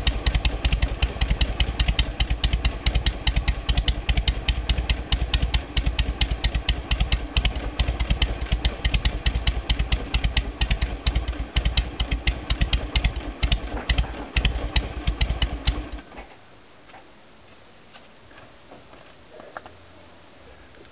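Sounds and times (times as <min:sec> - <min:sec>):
motorcycle engine idling: 0:00.0 - 0:16.1
faint engine ticks: 0:00.0 - 0:16.3.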